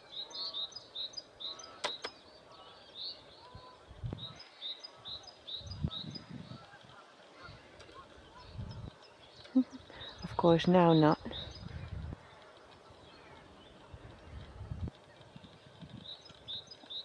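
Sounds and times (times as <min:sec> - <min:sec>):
small birds chirping: 0:00.0 - 0:17.0
sharp clicks: 0:01.8 - 0:02.2.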